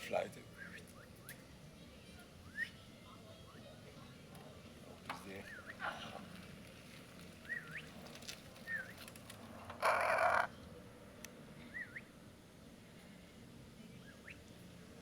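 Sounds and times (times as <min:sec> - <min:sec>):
parrot squawk: 0:09.8 - 0:10.5.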